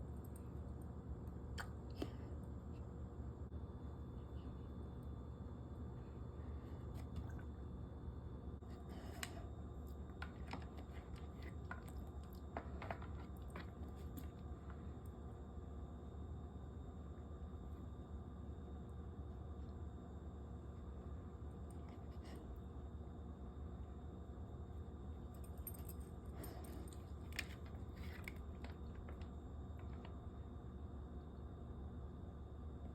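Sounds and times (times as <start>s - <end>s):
small wet noises: 5.9s - 7.9s.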